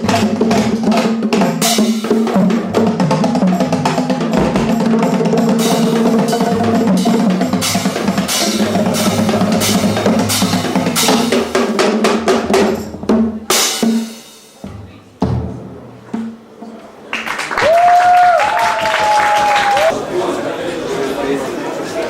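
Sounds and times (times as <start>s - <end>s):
separate drum strikes: 0.0s - 16.3s
music with drum kit: 0.0s - 16.4s.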